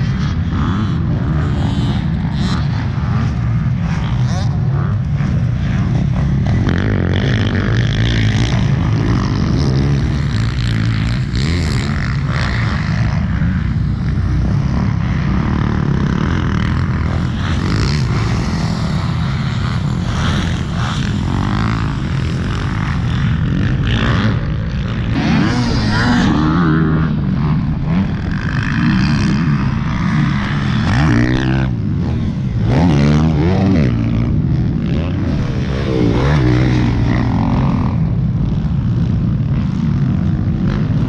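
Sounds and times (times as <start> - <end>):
dirt bike engine revving: 0.0 - 41.0.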